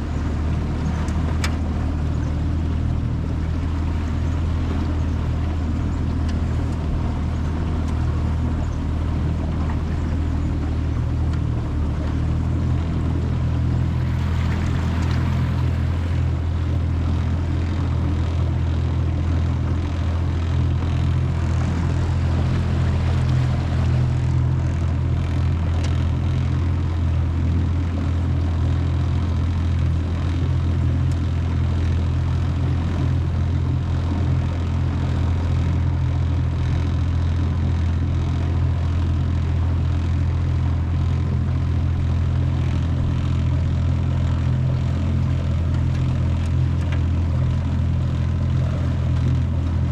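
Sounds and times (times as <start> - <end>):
outboard motor droning: 0.0 - 49.9
water rushing along boat hull: 0.0 - 49.9.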